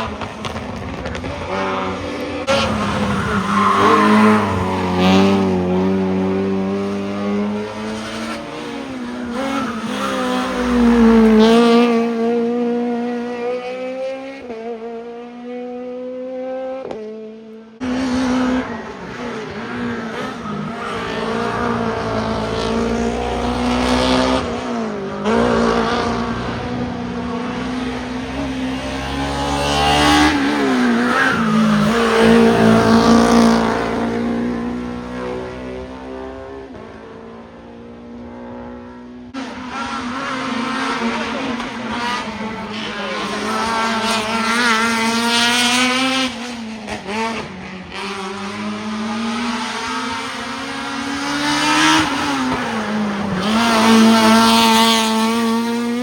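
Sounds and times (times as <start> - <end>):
race car engines at full throttle: 0.0 - 56.0.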